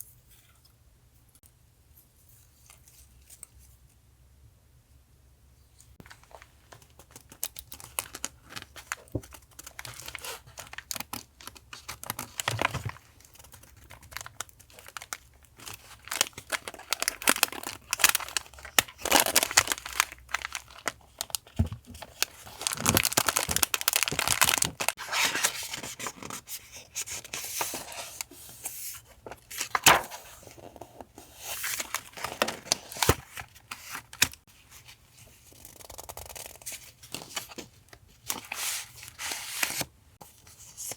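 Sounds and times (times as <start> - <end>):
paper tearing and crinkling: 22.4 - 26.4.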